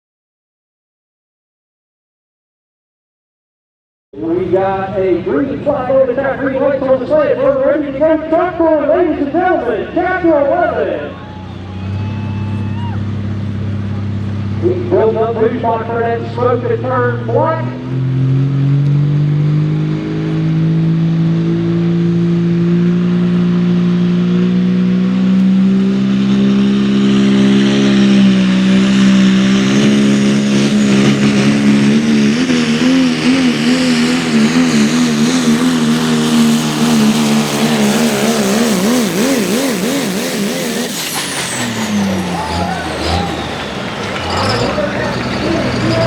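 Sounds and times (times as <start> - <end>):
truck engine under load: 4.2 - 46.0.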